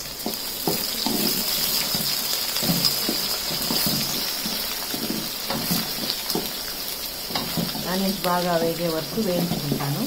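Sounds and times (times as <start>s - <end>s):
food sizzling in hot oil: 0.0s - 10.0s
wooden spatula scraping pot: 0.6s - 6.6s.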